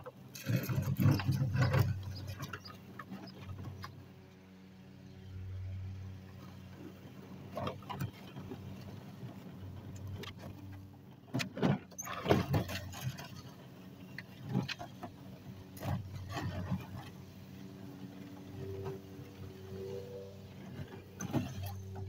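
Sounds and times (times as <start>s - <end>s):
push sweeper brushes clattering: 0.1s - 3.9s.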